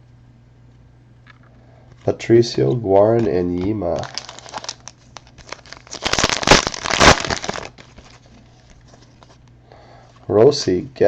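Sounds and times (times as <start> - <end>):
foil wrapper crinkling: 3.2 - 9.3.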